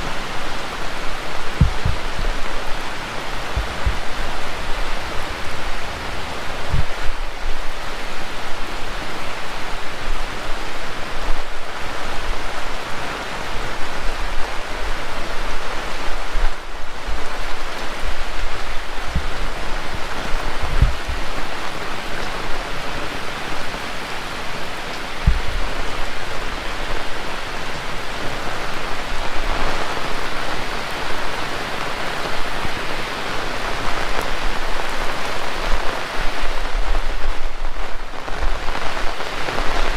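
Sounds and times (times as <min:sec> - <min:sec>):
heavy rain falling: 0:00.0 - 0:39.9
low thumps: 0:01.5 - 0:02.3, 0:19.1 - 0:20.1, 0:20.7 - 0:21.2, 0:25.2 - 0:25.7.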